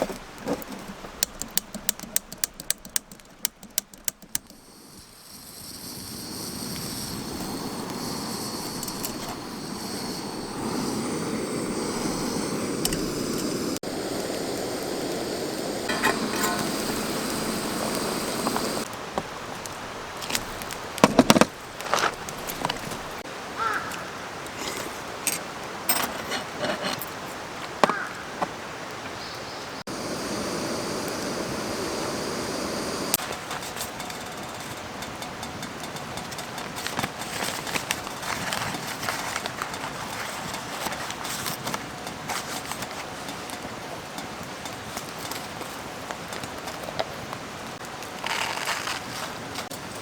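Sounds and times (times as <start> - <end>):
sharp clicks and knocks: 0.0 - 4.6
mountain stream rushing: 5.7 - 29.0, 29.8 - 33.4.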